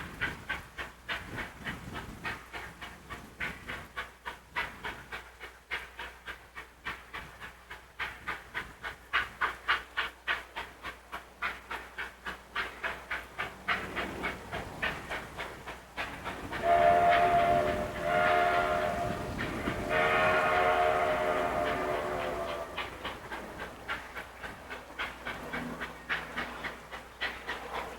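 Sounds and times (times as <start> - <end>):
steam locomotive chuffing: 0.0 - 27.9
steam whistle blasts: 16.6 - 23.0.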